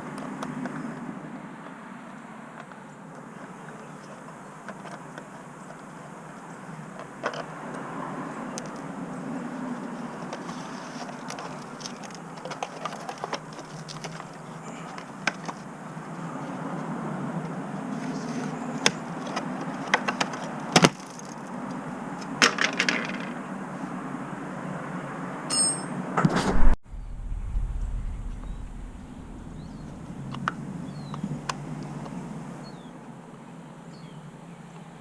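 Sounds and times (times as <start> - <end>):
clicks and clinks of metal parts: 25.5 - 26.0
steady low hum: 26.4 - 32.5.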